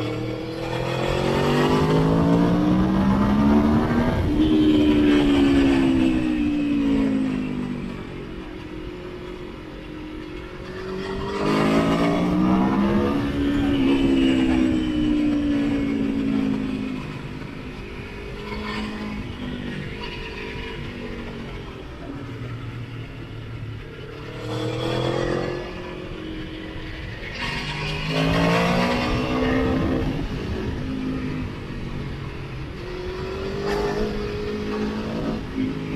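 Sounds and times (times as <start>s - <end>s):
motorcycle engine accelerating: 0.0s - 8.1s, 10.9s - 19.4s, 27.6s - 32.0s.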